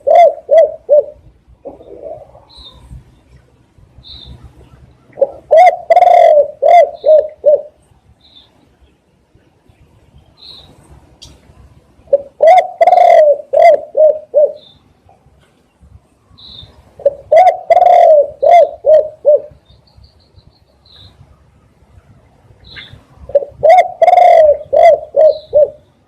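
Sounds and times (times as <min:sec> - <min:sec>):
dove cooing: 0:00.0 - 0:02.9, 0:04.2 - 0:07.8, 0:12.1 - 0:14.8, 0:17.0 - 0:19.6, 0:22.8 - 0:25.9.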